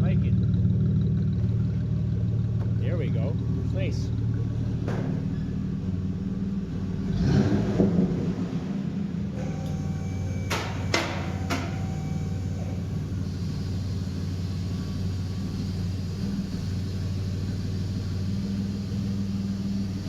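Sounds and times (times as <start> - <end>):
truck engine idling: 0.0 - 7.4, 8.1 - 20.0
sharp knocks: 10.4 - 12.2.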